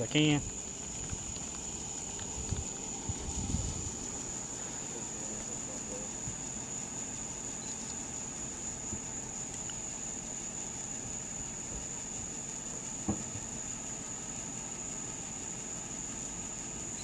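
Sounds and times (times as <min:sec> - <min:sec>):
high-pitched whine: 0:00.0 - 0:17.0
knock: 0:13.0 - 0:13.3.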